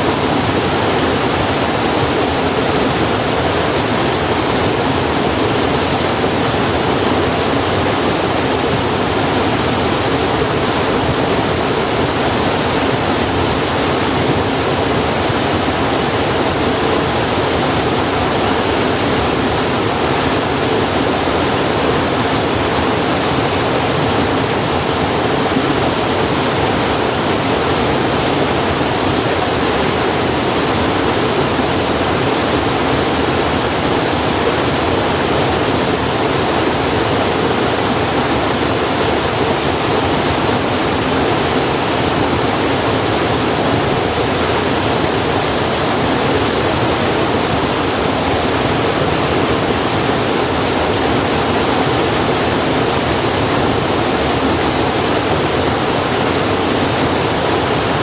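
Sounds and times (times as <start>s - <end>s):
flowing water rushing: 0.0s - 58.0s.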